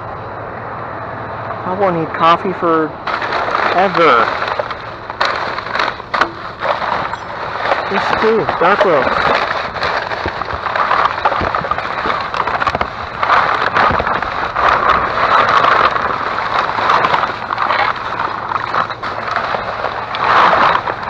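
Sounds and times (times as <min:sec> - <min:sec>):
plastic bag rustling: 0:03.0 - 0:21.0.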